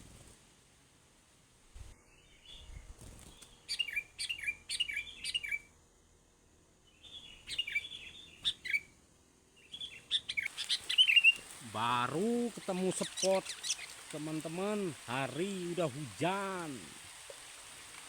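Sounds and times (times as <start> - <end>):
songbird chirping: 2.0 - 5.8, 6.8 - 18.0.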